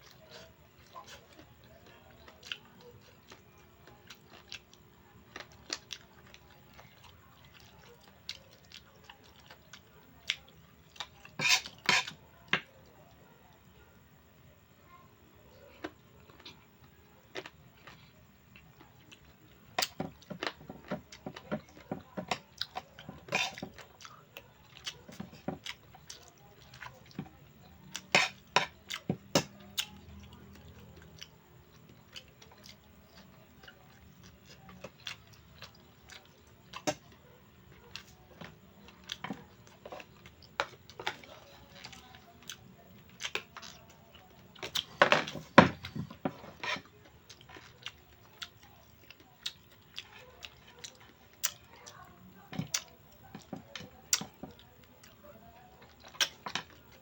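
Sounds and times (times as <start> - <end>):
chewing: 0.0 - 14.0, 15.0 - 57.0
cutlery scraping a plate: 11.4 - 12.2, 23.2 - 23.7, 28.1 - 28.8, 46.2 - 46.9.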